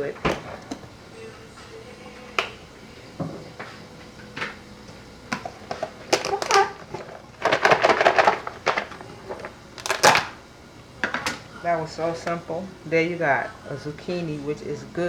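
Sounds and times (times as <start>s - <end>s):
kitchen utensils clattering: 0.0s - 1.4s, 5.3s - 10.4s, 11.0s - 12.6s
kitchen knocks and taps: 0.1s - 0.9s, 3.2s - 3.8s.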